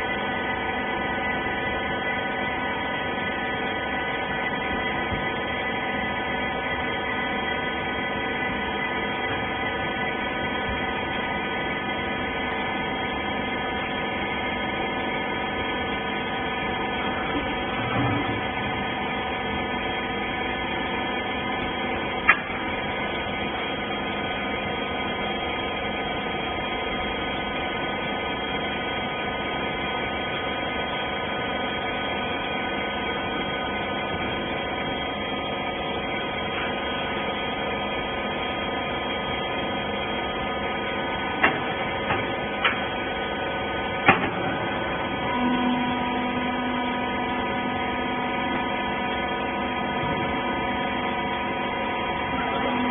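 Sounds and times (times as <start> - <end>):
hydraulic baler humming: 0.0 - 52.9
sharp clicks and knocks: 41.4 - 42.8.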